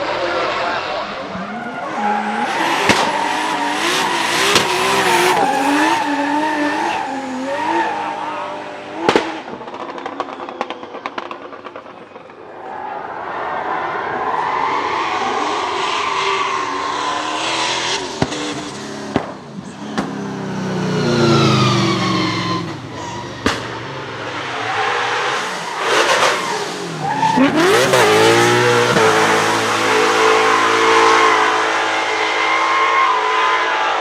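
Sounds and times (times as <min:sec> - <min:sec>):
car engine revving: 0:00.0 - 0:12.3, 0:14.0 - 0:34.0
tyre squeal: 0:21.2 - 0:23.8.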